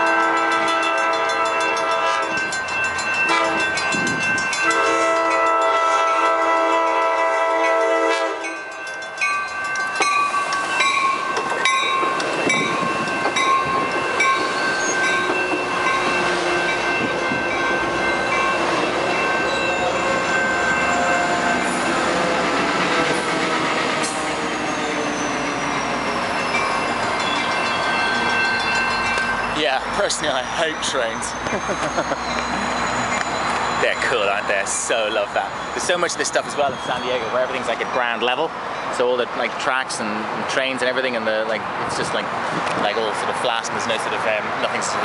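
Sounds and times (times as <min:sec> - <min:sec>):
train horn: 0:00.0 - 0:02.4, 0:03.3 - 0:03.7, 0:04.6 - 0:08.6
train wheels rumbling on rails: 0:00.0 - 0:45.0.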